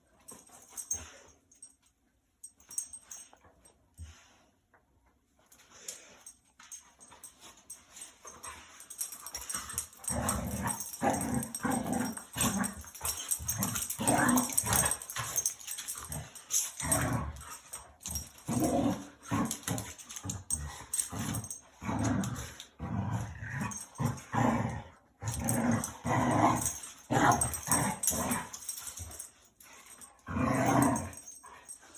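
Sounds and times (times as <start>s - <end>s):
dogs growling and barking: 8.4s - 31.9s.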